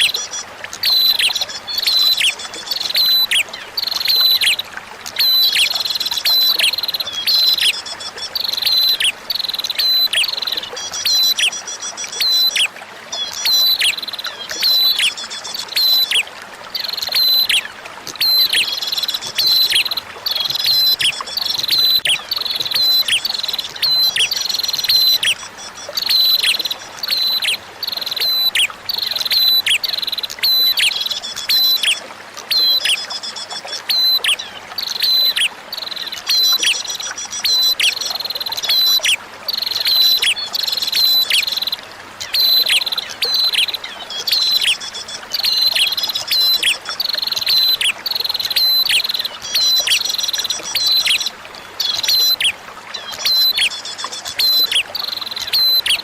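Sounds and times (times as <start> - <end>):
trickling water: 0.0 - 56.0.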